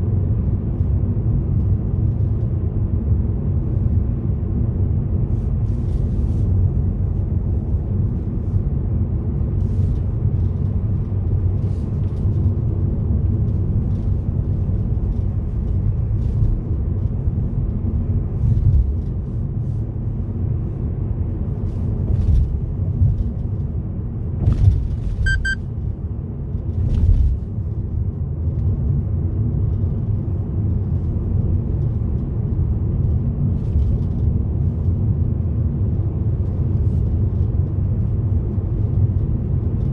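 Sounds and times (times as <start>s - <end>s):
car engine and road noise: 0.0s - 39.9s
quick high beeps: 25.2s - 25.6s.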